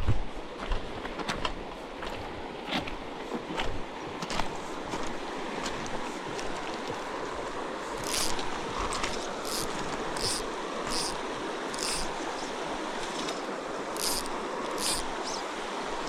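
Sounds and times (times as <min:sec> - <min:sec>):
flowing creek: 0:00.4 - 0:16.0
high hissing rasps: 0:08.0 - 0:08.4, 0:09.4 - 0:12.6, 0:13.9 - 0:15.5.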